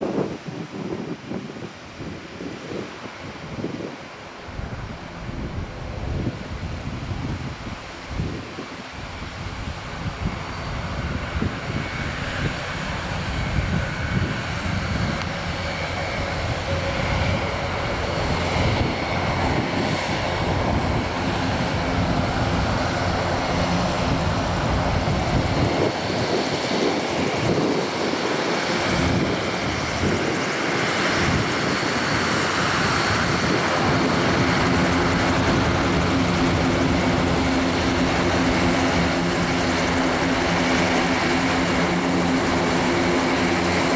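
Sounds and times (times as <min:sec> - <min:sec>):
humming propeller tones: 0:00.0 - 0:43.9
turboprop engines running: 0:00.3 - 0:43.9.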